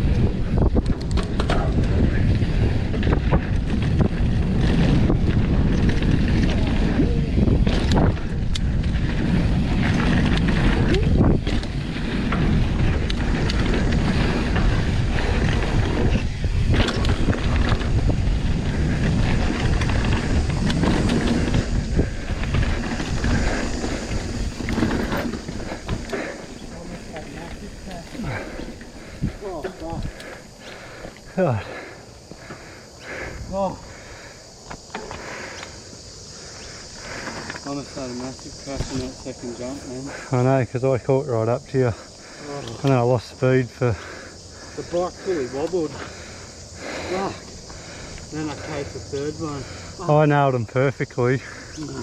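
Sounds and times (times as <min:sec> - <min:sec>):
bike clicks and knocks: 0:00.0 - 0:31.3, 0:34.6 - 0:35.8
wind buffeting microphone: 0:00.0 - 0:50.1
bike tyres on dirt trail: 0:00.0 - 0:52.0.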